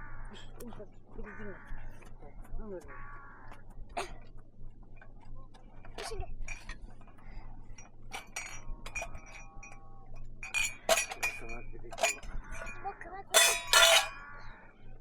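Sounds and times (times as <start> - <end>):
tableware clinking: 8.1 - 9.8, 10.4 - 14.3.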